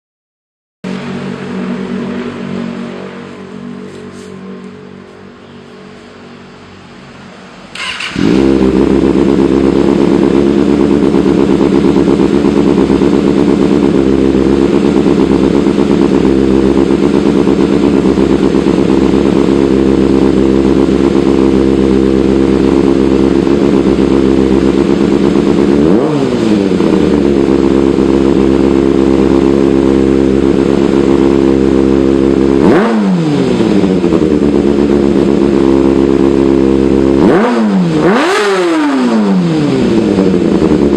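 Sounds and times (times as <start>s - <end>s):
motorcycle engine idling: 7.7s - 32.8s, 33.4s - 38.5s, 39.1s - 40.9s.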